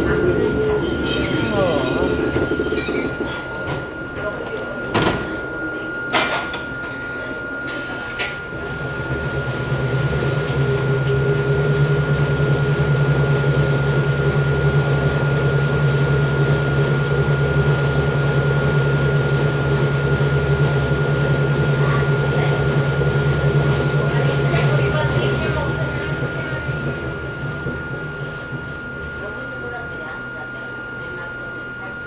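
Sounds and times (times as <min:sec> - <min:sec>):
thin high tone: 0:00.0 - 0:08.9
low hum: 0:00.0 - 0:18.1, 0:21.8 - 0:32.0
electric train running noise: 0:00.0 - 0:32.0.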